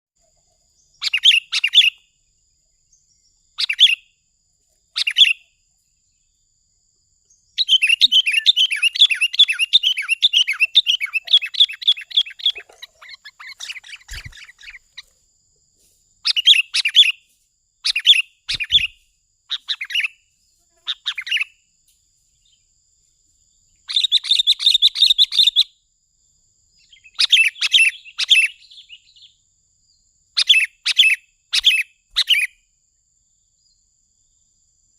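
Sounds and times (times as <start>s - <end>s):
bird chattering calls: 1.0s - 2.0s, 7.6s - 15.1s, 16.2s - 17.2s, 17.9s - 20.1s, 20.8s - 21.5s, 23.9s - 25.6s.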